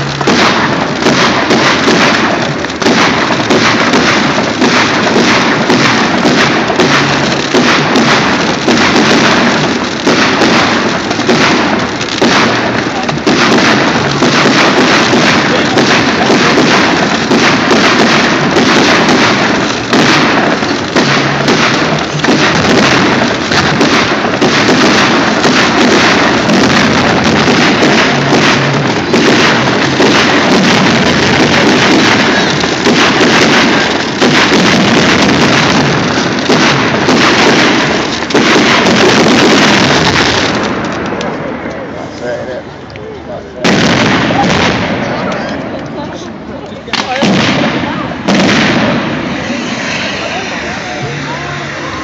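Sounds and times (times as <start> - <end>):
fireworks exploding: 0.0 - 52.0.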